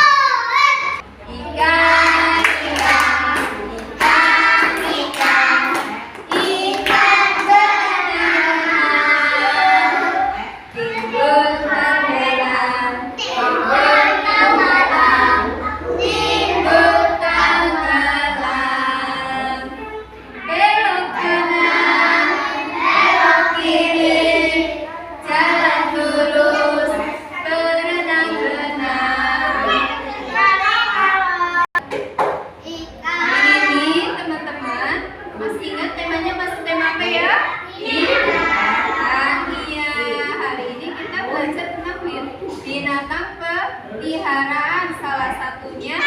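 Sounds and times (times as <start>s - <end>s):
children singing: 0.0s - 31.7s, 37.6s - 40.3s.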